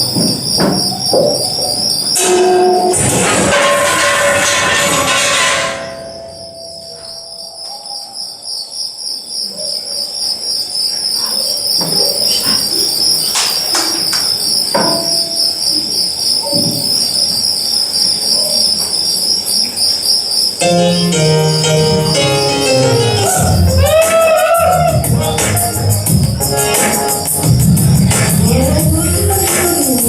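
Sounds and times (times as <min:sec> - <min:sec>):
sharp knocks: 0:00.0 - 0:01.6, 0:13.4 - 0:15.4
pulsing cricket-like chirring: 0:00.0 - 0:23.8.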